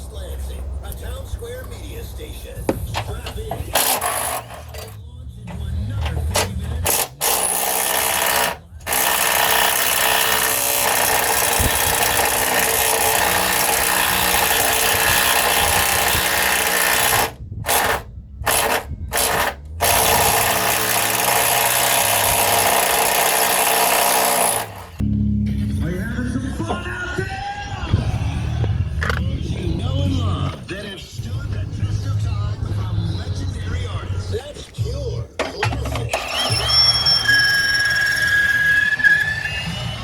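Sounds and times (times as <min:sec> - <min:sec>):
power tool running: 0:03.7 - 0:05.0, 0:06.1 - 0:25.0, 0:35.5 - 0:38.8.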